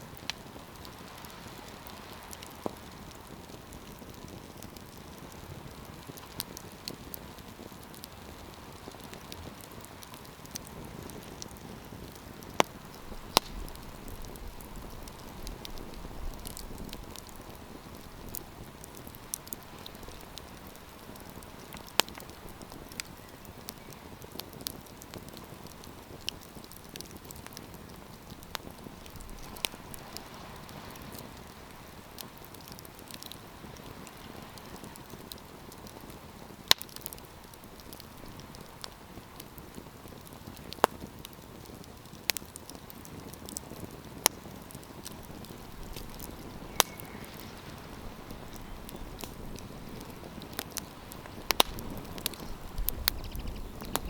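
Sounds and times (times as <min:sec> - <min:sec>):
campfire crackling: 0:00.0 - 0:54.0
low wind rumble: 0:44.9 - 0:54.0.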